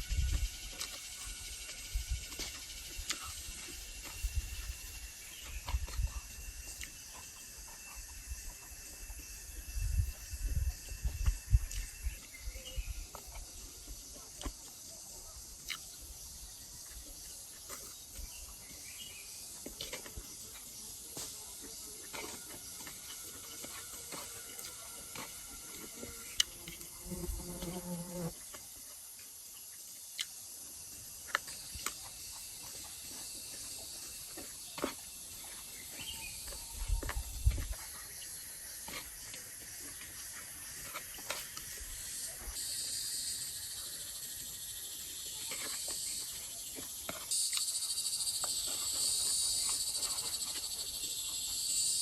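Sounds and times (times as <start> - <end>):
high insect buzzing: 25.2 - 28.4.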